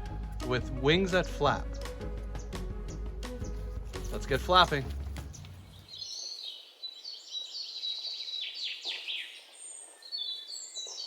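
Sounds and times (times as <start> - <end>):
birds chirping and singing: 0.0 - 11.0
quick falling bird calls: 3.4 - 11.0.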